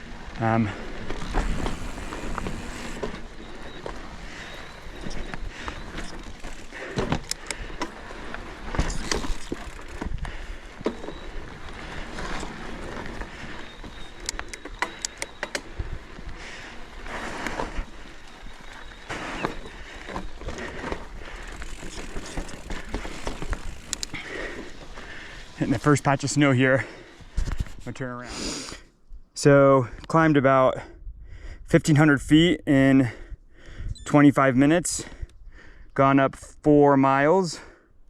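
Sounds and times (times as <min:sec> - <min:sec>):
bike tyre trail noise: 0:00.0 - 0:28.8
bike clicks and knocks: 0:01.0 - 0:12.6, 0:13.9 - 0:15.8, 0:17.4 - 0:25.1.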